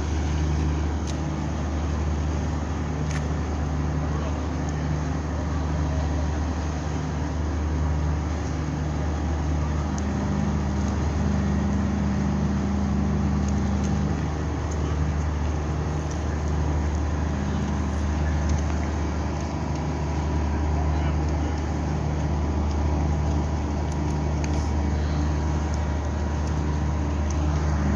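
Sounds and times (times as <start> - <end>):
low engine rumble: 0.0 - 27.9
faint murmur of voices: 14.8 - 27.9.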